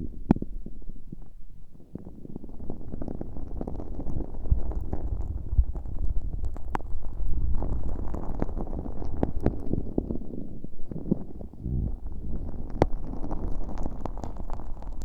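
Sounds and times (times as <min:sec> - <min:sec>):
slime crackling and squelching: 0:02.5 - 0:15.0
low rumble: 0:11.4 - 0:13.1.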